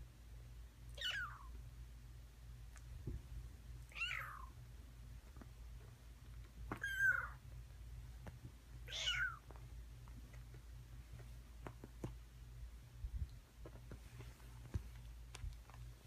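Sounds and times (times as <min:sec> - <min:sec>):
kitten mewing: 0:00.9 - 0:01.5, 0:03.9 - 0:04.6, 0:06.7 - 0:07.4, 0:08.9 - 0:09.5.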